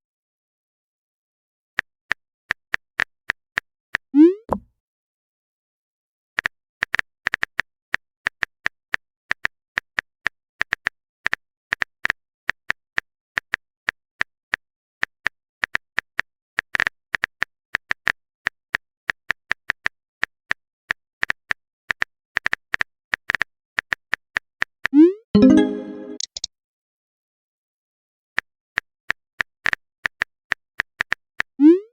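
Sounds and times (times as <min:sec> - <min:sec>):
phone keyboard typing ticks: 0:25.4 - 0:26.5.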